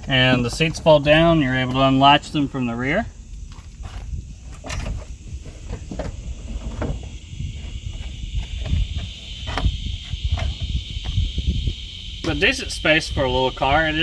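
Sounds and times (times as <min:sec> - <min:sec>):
insects buzzing: 0:00.0 - 0:14.0
wind on microphone: 0:02.1 - 0:14.0.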